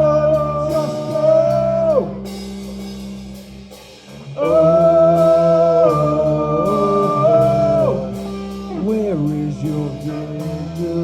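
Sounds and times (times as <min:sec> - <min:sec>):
live metal band playing: 0:00.0 - 0:11.0.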